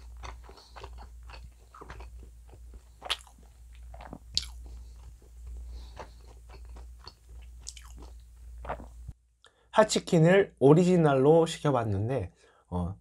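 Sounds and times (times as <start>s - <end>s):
chewing pizza with wet smacks: 0.0s - 9.0s
crust crunching: 0.0s - 9.1s.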